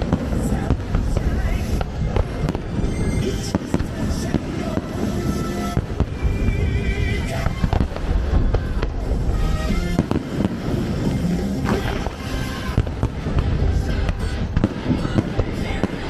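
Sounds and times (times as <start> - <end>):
fireworks booming and crackling: 0.0 - 16.0
low rumble: 0.0 - 16.0
music over loudspeakers: 0.0 - 16.0.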